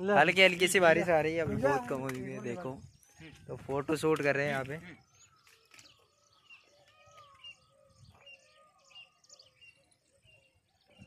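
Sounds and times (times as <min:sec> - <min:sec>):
faint bird chirps: 0:04.8 - 0:11.0.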